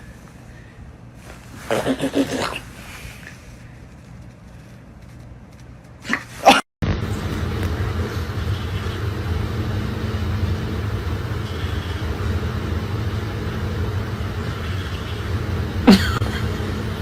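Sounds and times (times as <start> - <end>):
low background rumble: 6.8 - 17.0.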